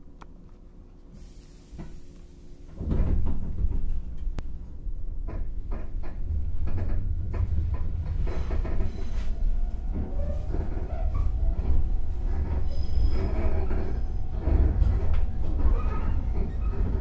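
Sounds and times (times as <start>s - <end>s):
hiss: 1.2s - 2.5s
train running rumble: 1.7s - 17.0s.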